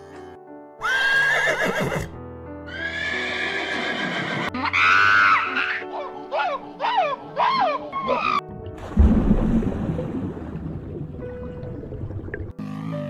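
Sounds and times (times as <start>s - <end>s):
background music: 0.0s - 13.0s
horse whinnying: 0.8s - 5.9s.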